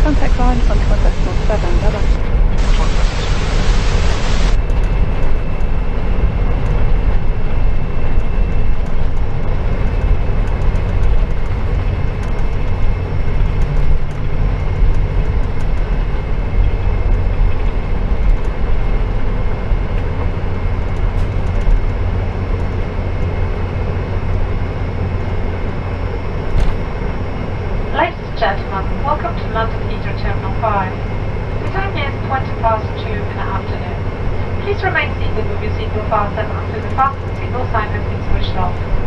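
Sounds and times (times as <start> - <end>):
faint high whine: 0.0 - 6.2
airliner low rumble: 0.0 - 39.0.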